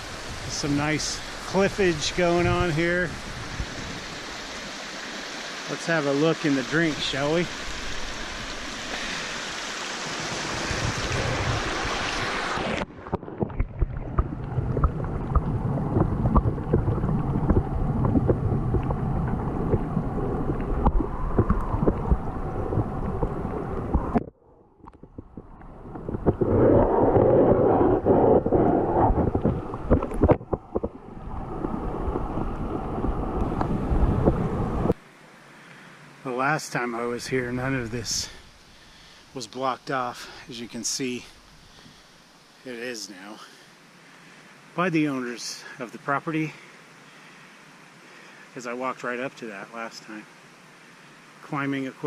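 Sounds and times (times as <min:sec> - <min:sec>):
creek water rushing: 0:00.0 - 0:24.3, 0:25.3 - 0:52.0
wind buffeting microphone: 0:02.3 - 0:04.2, 0:10.4 - 0:12.5, 0:13.3 - 0:24.2, 0:25.1 - 0:35.0.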